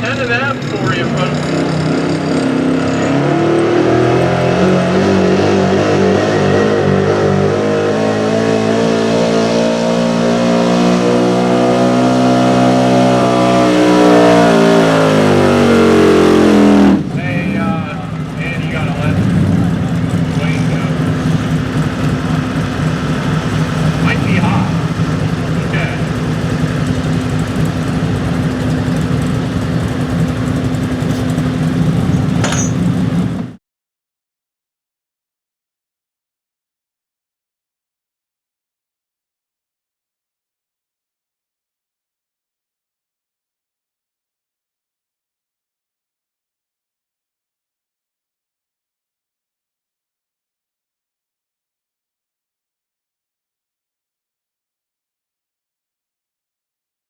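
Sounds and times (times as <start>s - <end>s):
pickup truck engine at full throttle: 0.0s - 33.6s.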